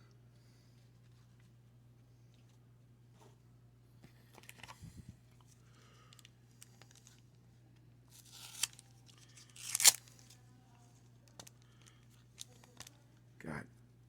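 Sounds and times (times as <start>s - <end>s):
wrapper crinkling: 8.1s - 10.3s
wax paper wrapper ripping: 8.1s - 10.4s.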